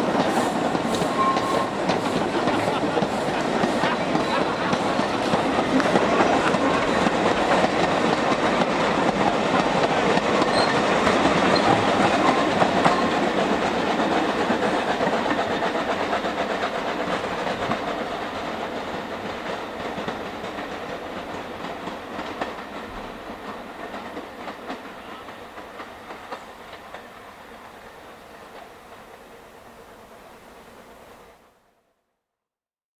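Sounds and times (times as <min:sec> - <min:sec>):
train wagons clattering on rails: 0:00.0 - 0:29.4.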